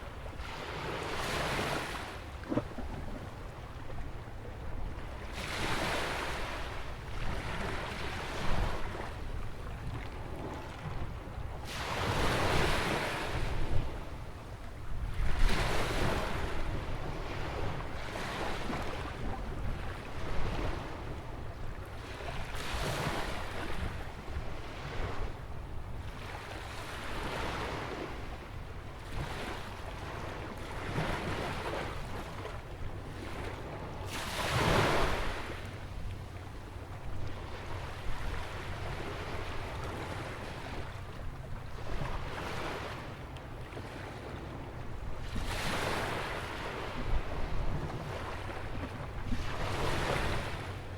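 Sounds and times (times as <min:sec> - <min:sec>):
ocean waves breaking: 0:37.2 - 0:50.9.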